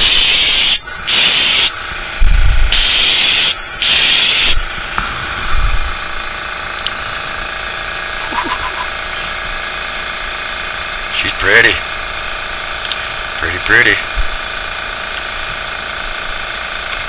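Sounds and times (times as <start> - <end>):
paint spray hissing bursts: 0.0 - 1.7, 2.7 - 4.6.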